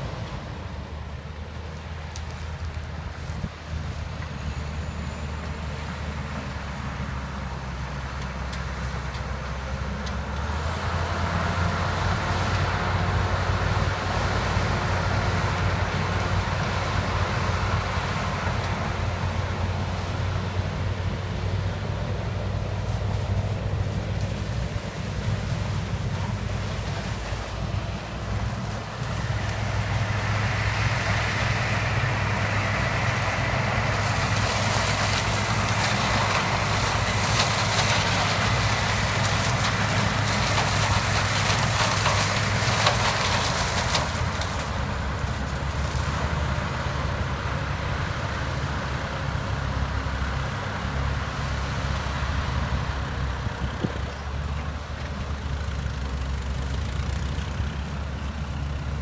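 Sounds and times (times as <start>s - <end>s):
diesel engine humming: 0.0s - 59.0s
cane crackling and rustling: 1.4s - 4.4s, 17.9s - 46.9s.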